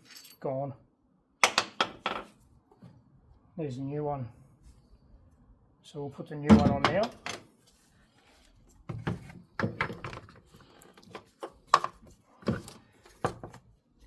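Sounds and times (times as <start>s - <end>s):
knocks of parts and tools handled: 1.4s - 2.4s, 6.5s - 7.5s, 8.9s - 10.4s, 11.0s - 13.6s.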